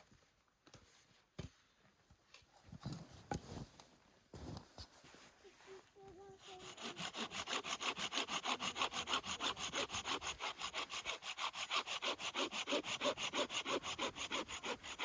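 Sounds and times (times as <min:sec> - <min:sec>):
hand saw cutting wood: 0:06.3 - 0:15.0.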